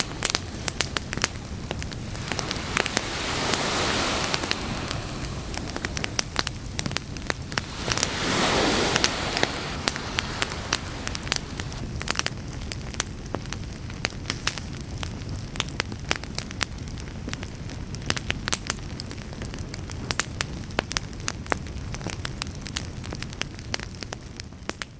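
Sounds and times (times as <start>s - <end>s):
campfire crackling and popping: 0.0s - 11.8s
steady low rumble: 0.0s - 11.8s
brief rush of noise: 2.0s - 11.8s.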